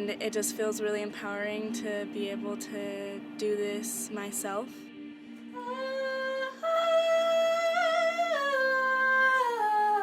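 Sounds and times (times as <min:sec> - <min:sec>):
low drone: 0:01.1 - 0:08.3.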